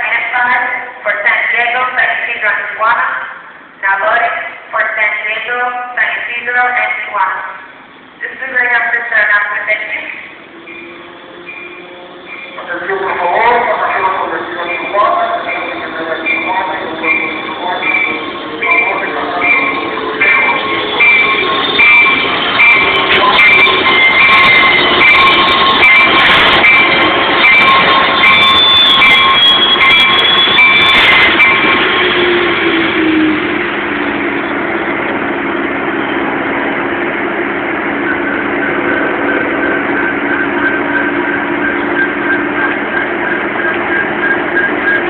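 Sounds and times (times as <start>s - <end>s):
train rumbling: 0.0s - 45.0s
train bell ringing: 10.1s - 34.6s, 37.6s - 45.0s.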